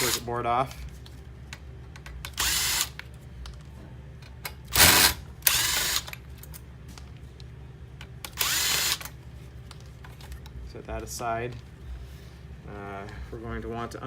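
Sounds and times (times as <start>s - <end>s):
cordless power screwdriver running: 2.4s - 3.0s, 4.8s - 6.1s, 8.3s - 9.1s.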